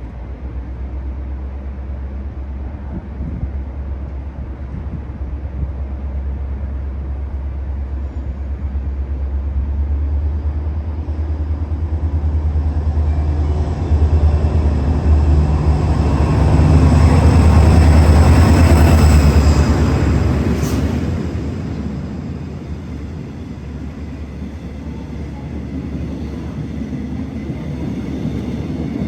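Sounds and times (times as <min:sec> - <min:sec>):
train rumble: 0:00.0 - 0:29.0.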